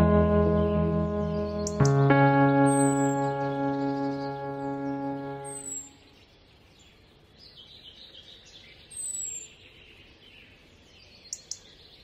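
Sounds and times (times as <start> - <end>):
birds chirping: 0.0 - 7.0.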